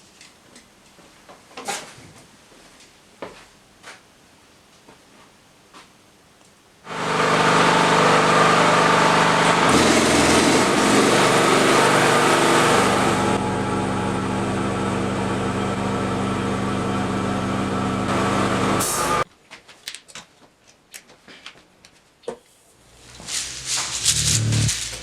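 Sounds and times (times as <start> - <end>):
small motor running: 22.8 - 25.0.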